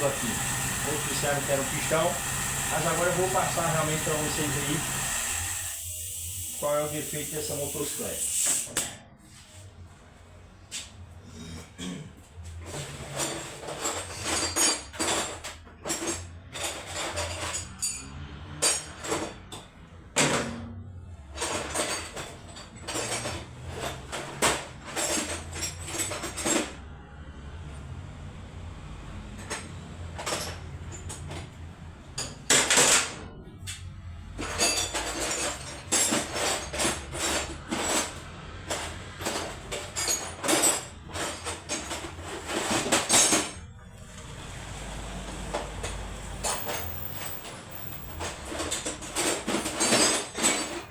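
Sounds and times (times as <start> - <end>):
metal tools clinking: 34.4 - 43.6, 45.8 - 50.9.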